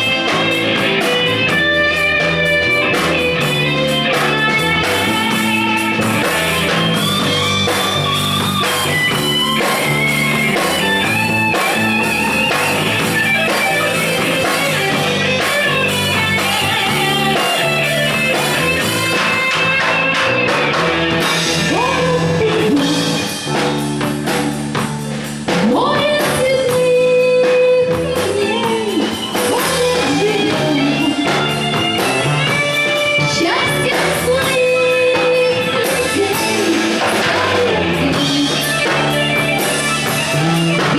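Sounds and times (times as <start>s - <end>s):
guitar: 0.0s - 40.9s
live band playing pop-rock: 0.0s - 40.9s
person singing: 8.6s - 20.2s, 21.2s - 23.5s, 25.5s - 40.9s.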